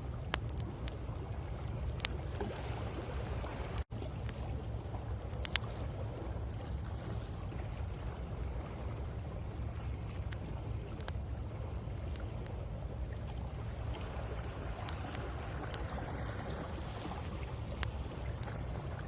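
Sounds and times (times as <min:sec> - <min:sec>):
campfire crackling and popping: 0:00.0 - 0:04.4, 0:05.2 - 0:05.7, 0:09.6 - 0:11.2, 0:14.4 - 0:15.9
ocean waves: 0:00.0 - 0:19.0.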